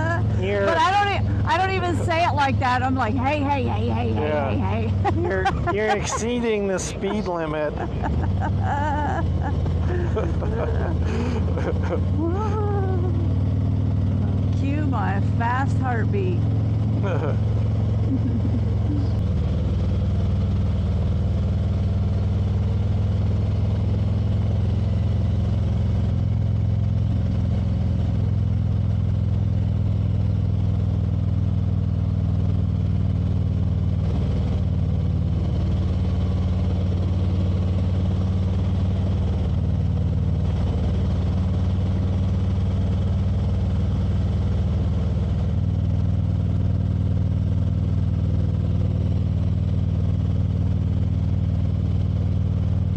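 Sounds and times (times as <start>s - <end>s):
motorcycle engine droning: 0.0s - 52.9s.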